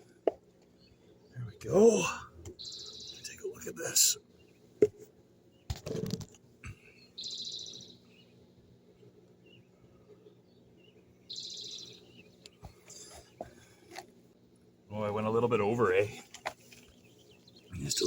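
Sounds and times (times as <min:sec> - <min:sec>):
songbird trilling: 0:02.5 - 0:04.6, 0:07.0 - 0:08.3, 0:10.8 - 0:13.2, 0:16.6 - 0:18.0.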